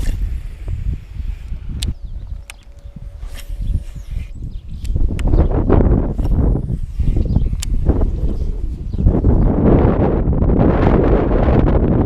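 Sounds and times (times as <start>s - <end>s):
wind buffeting microphone: 0.0s - 12.0s
sharp click: 1.7s - 5.6s, 7.2s - 8.0s.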